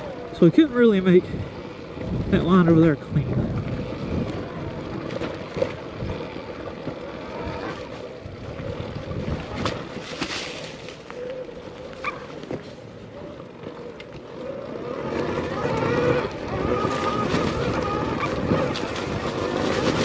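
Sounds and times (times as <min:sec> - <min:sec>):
electric motor whine: 0:00.0 - 0:10.0, 0:10.8 - 0:20.0
wind noise: 0:00.0 - 0:11.2, 0:15.0 - 0:20.0
tyre noise on dirt: 0:09.0 - 0:13.0, 0:14.8 - 0:20.0
bike knocking over rocks: 0:09.3 - 0:11.2, 0:16.4 - 0:20.0.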